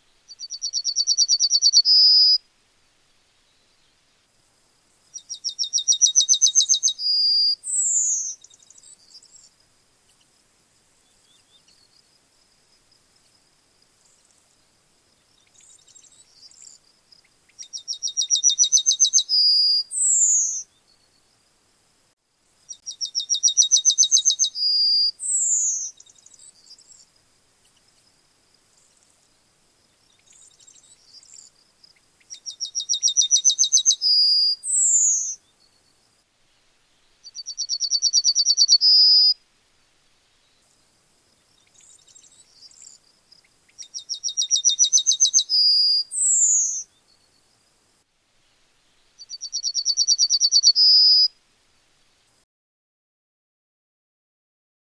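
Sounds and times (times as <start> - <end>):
yellowhammer singing: 0.0 - 2.4, 5.1 - 9.5, 15.3 - 21.3, 22.6 - 27.1, 29.9 - 36.0, 37.0 - 39.4, 41.4 - 47.5, 49.2 - 51.3.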